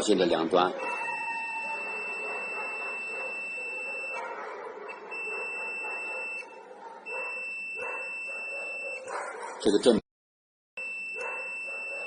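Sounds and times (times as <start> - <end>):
multimeter continuity beep: 1.8 - 4.3, 4.9 - 6.5, 7.1 - 9.1, 10.8 - 12.0.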